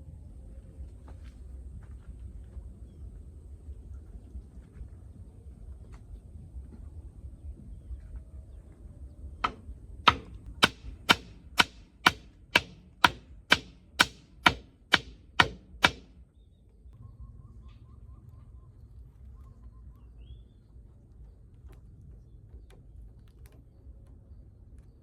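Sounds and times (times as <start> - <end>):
hammer strikes: 9.4 - 16.2.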